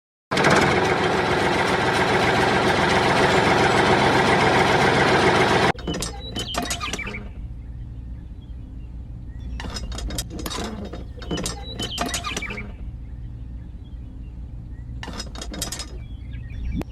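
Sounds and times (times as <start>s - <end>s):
rapid mechanical clicking: 0.3s - 7.3s, 9.6s - 12.8s, 15.0s - 16.0s.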